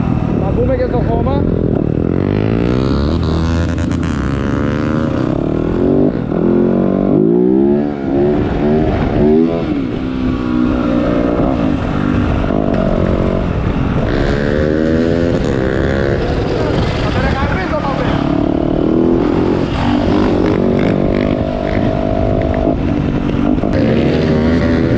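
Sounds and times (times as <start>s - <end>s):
motocross bike engine revving: 12.7s - 24.9s.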